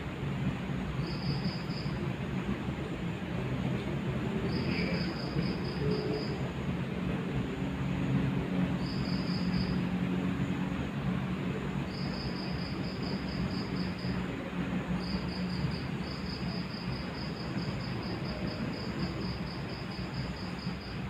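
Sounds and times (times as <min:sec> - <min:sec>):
cricket chirping: 0:01.0 - 0:02.2, 0:04.4 - 0:06.5, 0:08.8 - 0:09.9, 0:11.9 - 0:14.3, 0:14.9 - 0:21.0.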